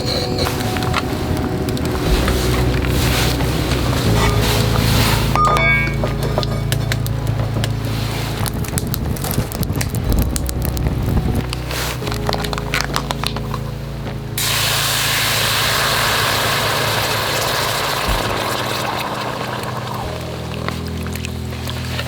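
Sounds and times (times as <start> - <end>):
wood crackling and snapping: 0.3 - 14.6, 16.6 - 22.0
loud rushing hiss: 14.4 - 18.9.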